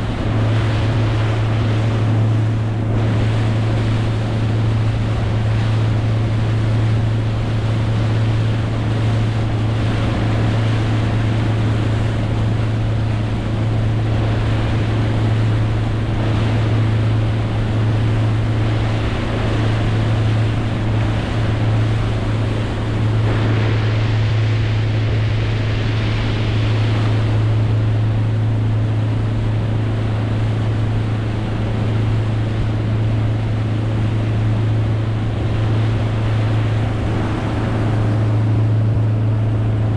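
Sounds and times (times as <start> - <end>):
boat engine droning: 0.0 - 39.9
water rushing: 0.0 - 39.9
wind on microphone: 0.0 - 39.9.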